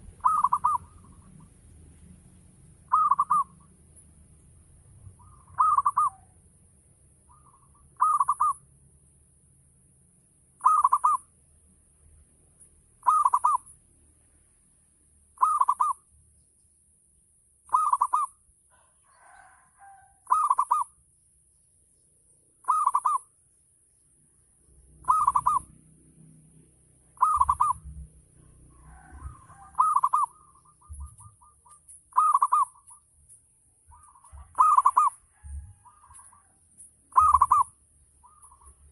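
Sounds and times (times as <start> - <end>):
dove cooing: 0.0 - 1.5, 2.9 - 3.7, 5.0 - 6.4, 7.3 - 8.6, 10.6 - 11.3, 13.0 - 13.7, 15.4 - 16.0, 17.7 - 20.9, 22.6 - 23.3, 25.0 - 25.8, 27.1 - 33.0, 33.9 - 38.9.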